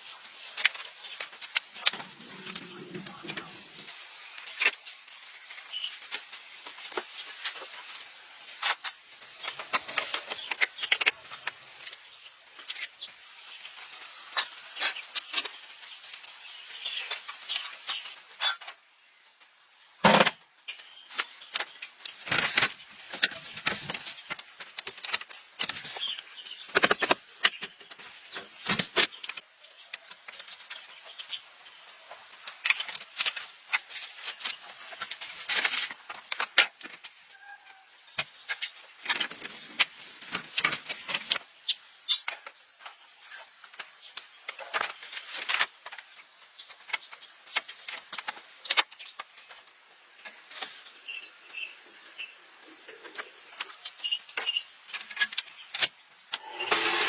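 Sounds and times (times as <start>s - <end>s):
hand tools and metal parts clattering: 12.6s - 13.1s, 17.1s - 18.8s, 54.4s - 57.0s.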